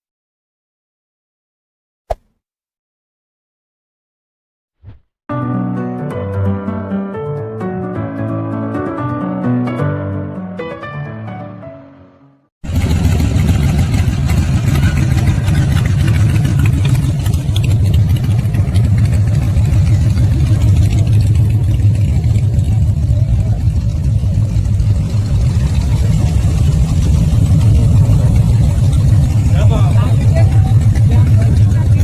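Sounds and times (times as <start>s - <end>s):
motorcycle engine idling: 12.7s - 32.0s.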